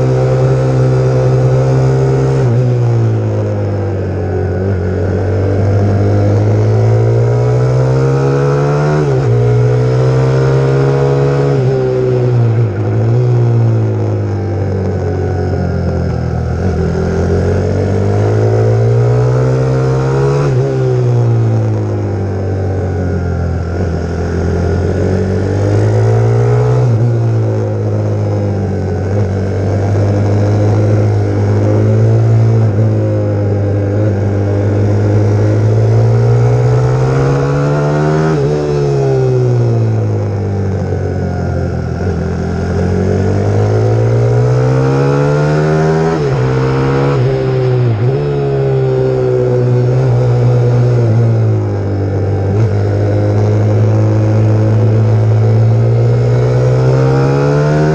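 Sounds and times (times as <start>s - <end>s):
pit bike engine revving: 23.0s - 57.9s.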